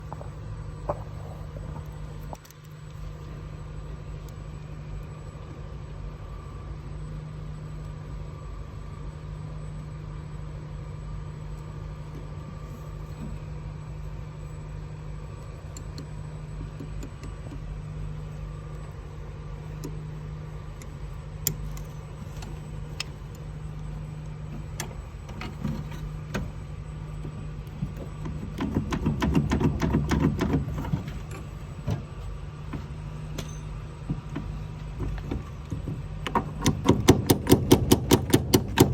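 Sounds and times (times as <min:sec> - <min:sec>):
low mechanical hum: 0:00.0 - 0:38.9
sharp clicks and knocks: 0:27.2 - 0:38.9.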